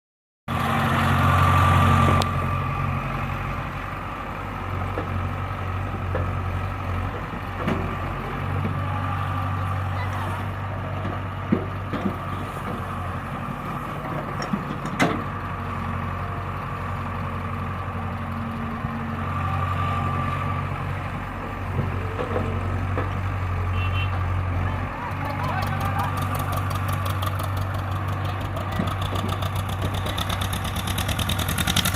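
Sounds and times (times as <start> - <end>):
diesel engines running: 0.5 - 31.9
metal knocks and clanks: 10.9 - 12.9.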